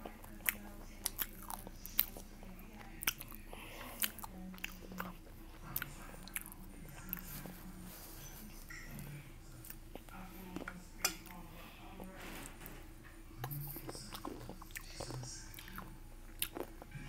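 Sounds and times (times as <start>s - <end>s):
chewing crunchy food: 0.0s - 11.4s, 13.1s - 17.0s.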